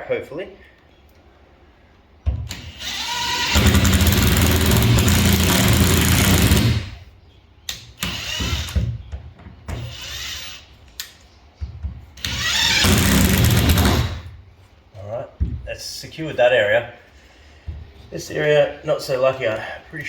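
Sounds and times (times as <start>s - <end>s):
power drill running: 2.5s - 7.0s, 8.0s - 8.9s, 9.8s - 10.6s, 12.2s - 14.2s.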